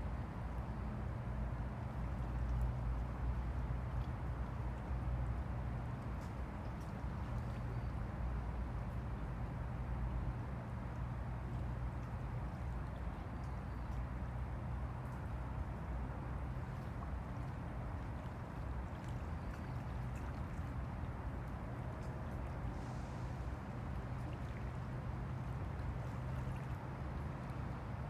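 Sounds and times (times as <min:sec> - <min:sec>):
constant low rumble: 0:00.0 - 0:28.0
small waves lapping: 0:00.1 - 0:28.0.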